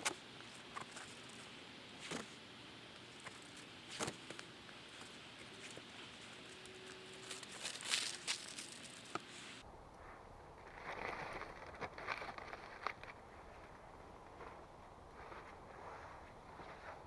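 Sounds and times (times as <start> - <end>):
background hiss: 0.0 - 10.5.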